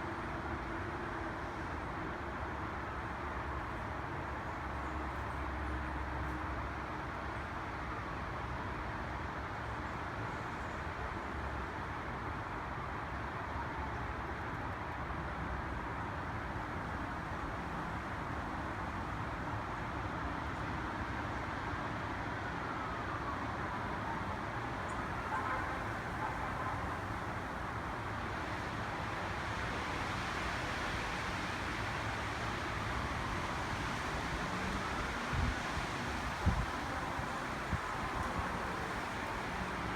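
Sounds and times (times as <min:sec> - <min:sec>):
wind rushing through trees: 0:23.0 - 0:39.9.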